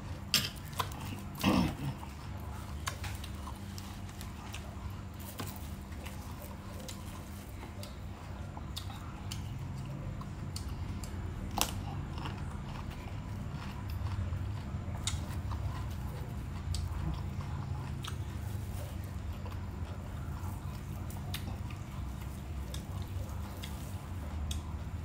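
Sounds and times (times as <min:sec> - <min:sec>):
crisp chewing crunches: 0:00.0 - 0:25.0
steady low hum: 0:00.0 - 0:25.0.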